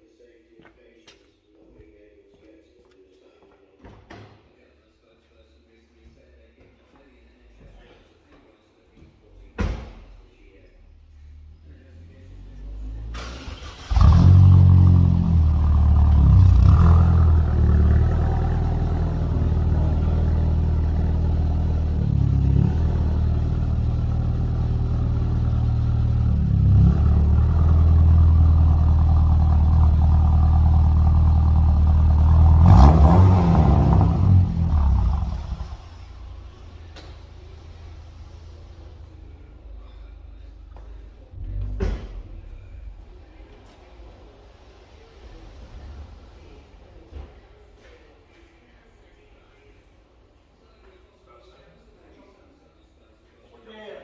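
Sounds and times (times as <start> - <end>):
car engine starting: 10.9 - 48.3
car engine idling and revving: 11.1 - 47.9.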